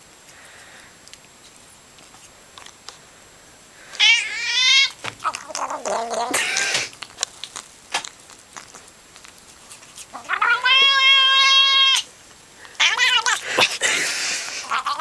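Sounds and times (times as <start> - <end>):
cat meowing: 4.0 - 6.9, 10.1 - 12.1, 12.8 - 13.7, 14.6 - 15.0.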